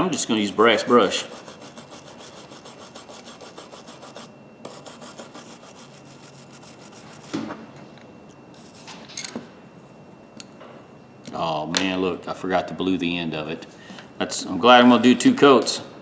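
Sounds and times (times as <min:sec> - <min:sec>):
wire brush scrubbing metal: 0:00.4 - 0:07.4.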